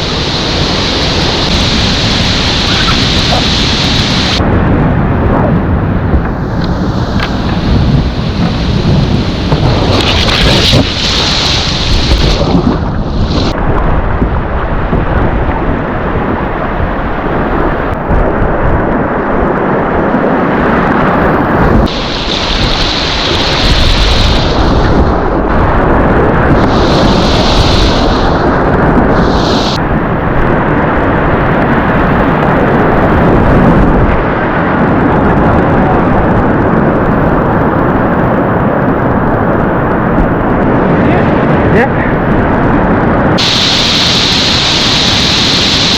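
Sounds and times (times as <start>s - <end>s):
hissing surges of spray: 0.0s - 4.4s, 21.9s - 24.8s, 26.6s - 28.5s, 29.1s - 29.8s, 43.4s - 45.9s
whitewater rushing in rapids: 0.0s - 4.4s, 8.2s - 13.6s, 21.9s - 25.3s, 26.5s - 29.8s, 43.4s - 45.9s.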